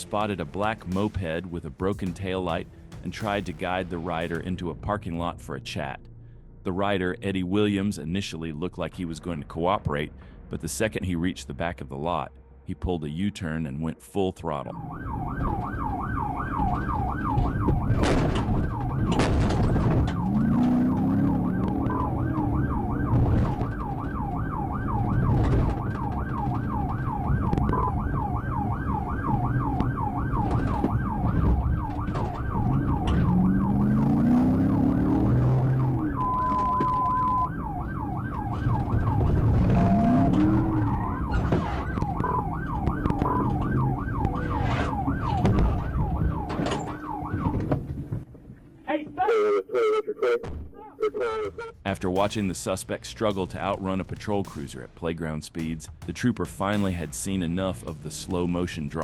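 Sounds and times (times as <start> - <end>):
police siren yelping: 14.7 - 48.0, 49.2 - 51.8
lower rising tone: 19.9 - 47.7.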